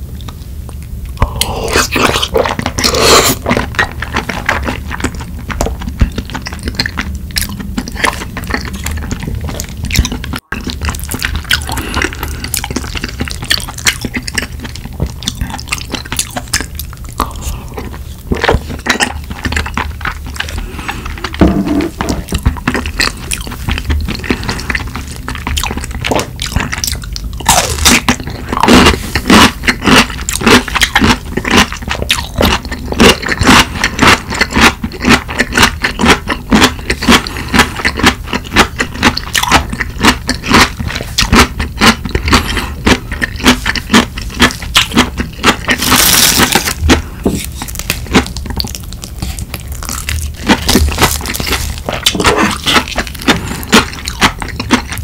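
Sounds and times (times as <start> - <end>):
crunching and chewing: 0.2 - 55.0.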